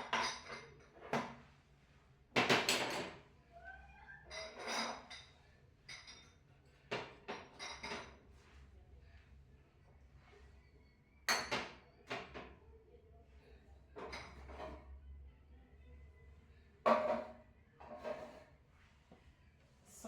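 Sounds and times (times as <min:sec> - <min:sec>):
glassware and containers clinking: 0:00.0 - 0:01.1, 0:04.3 - 0:05.3, 0:05.9 - 0:08.2, 0:14.0 - 0:14.8.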